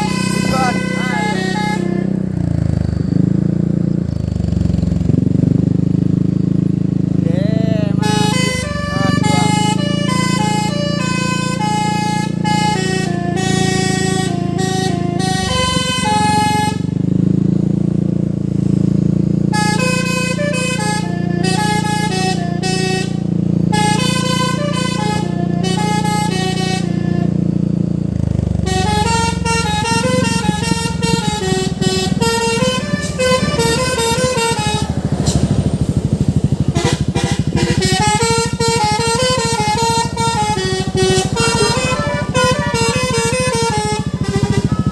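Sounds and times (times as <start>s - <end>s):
musical air horn playing a tune: 0.0s - 2.3s, 7.7s - 16.9s, 19.5s - 27.4s, 28.6s - 35.9s, 36.6s - 44.9s
truck engine rumble: 0.0s - 44.9s.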